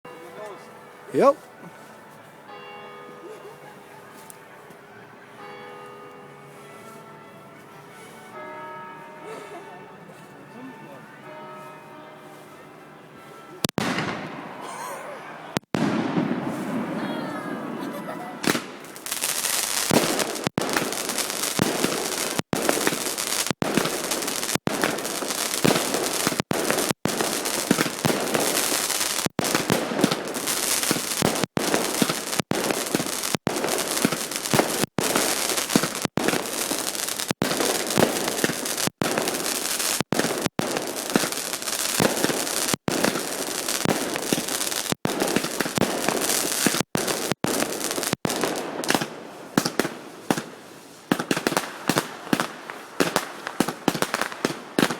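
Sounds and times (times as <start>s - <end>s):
fireworks bangs and crackling: 13.6s - 14.8s, 15.5s - 54.9s
loud single firework bangs: 13.7s - 14.7s, 15.5s - 54.9s.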